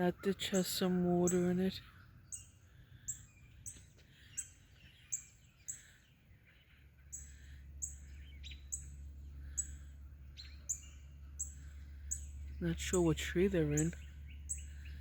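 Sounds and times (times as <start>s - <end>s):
birds chirping: 0.0s - 15.0s
low steady rumble: 0.0s - 15.0s.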